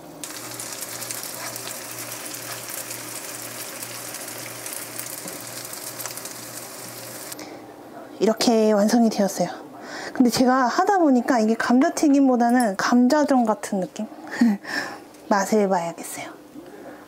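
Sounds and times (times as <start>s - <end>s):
patties sizzling in hot oil: 0.0s - 7.4s.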